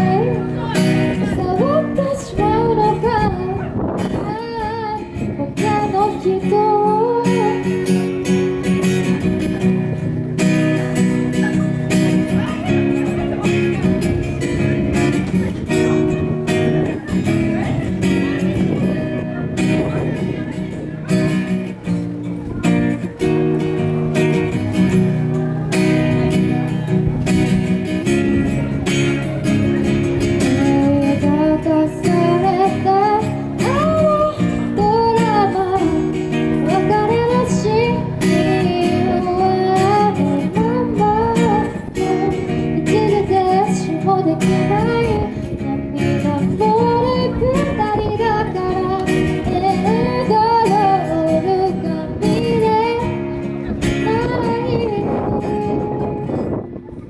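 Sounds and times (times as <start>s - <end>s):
woman singing: 0.0s - 9.0s, 30.1s - 56.5s
strummed acoustic guitar: 0.0s - 57.0s.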